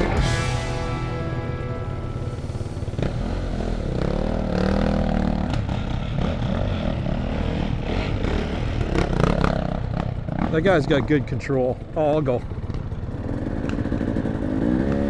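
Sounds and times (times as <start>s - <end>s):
dirt bike engine revving: 0.0s - 15.0s
bike knocking and clattering: 3.9s - 15.0s.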